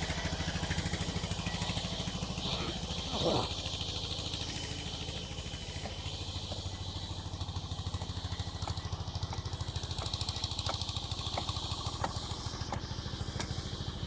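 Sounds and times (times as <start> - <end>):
sawmill engine running: 0.0 - 14.0.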